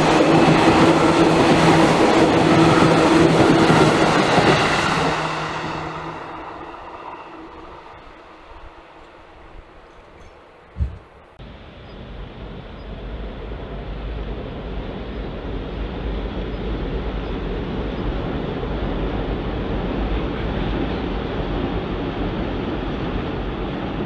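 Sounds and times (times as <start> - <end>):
electric train approaching: 0.0 - 24.0
low thump: 10.8 - 11.1.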